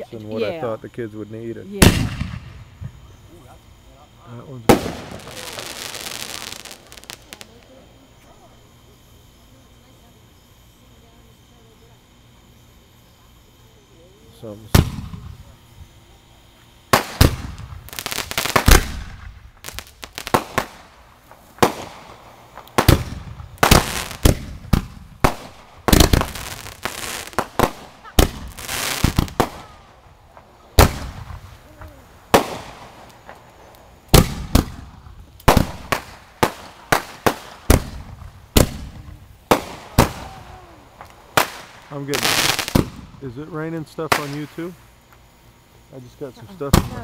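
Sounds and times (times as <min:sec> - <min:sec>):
fireworks bangs and crackling: 0:01.6 - 0:08.4, 0:14.5 - 0:16.0, 0:16.6 - 0:44.8, 0:46.6 - 0:47.0.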